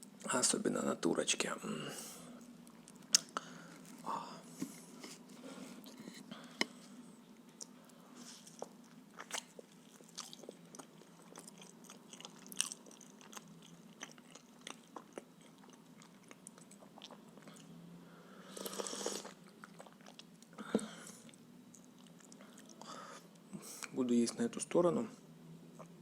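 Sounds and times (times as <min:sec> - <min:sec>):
chewing and biting food: 0:08.4 - 0:17.7, 0:19.2 - 0:20.4.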